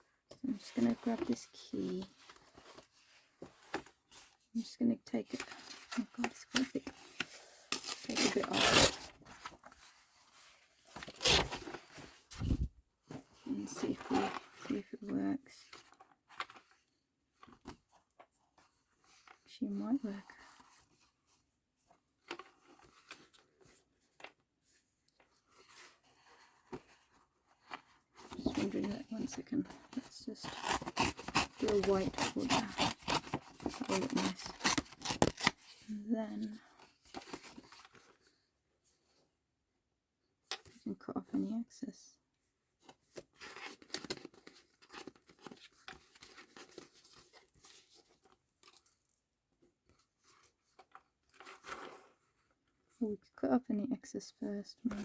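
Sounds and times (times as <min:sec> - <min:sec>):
paper and card rustling: 0:05.3 - 0:15.1, 0:25.2 - 0:38.4, 0:42.8 - 0:49.0
paper crackling and rustling: 0:25.5 - 0:35.8.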